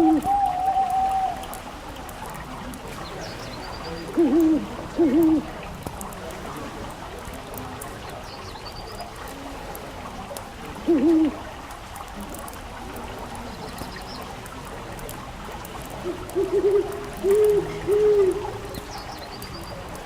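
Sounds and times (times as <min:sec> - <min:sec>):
owl hooting: 0:00.0 - 0:01.5, 0:04.0 - 0:05.5.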